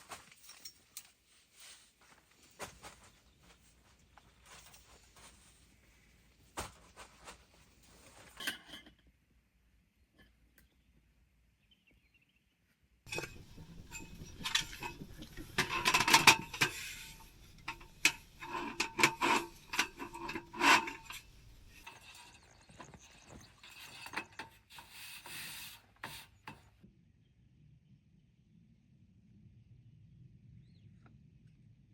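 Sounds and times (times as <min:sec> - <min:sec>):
camping gear rubbing and scraping: 0:13.1 - 0:26.7.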